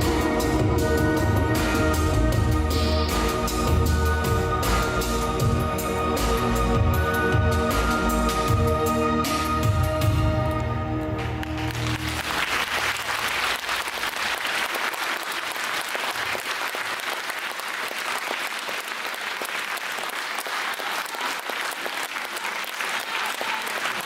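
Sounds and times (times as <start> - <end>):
low music notes: 0.0 - 13.5
audience applauding: 11.2 - 24.0.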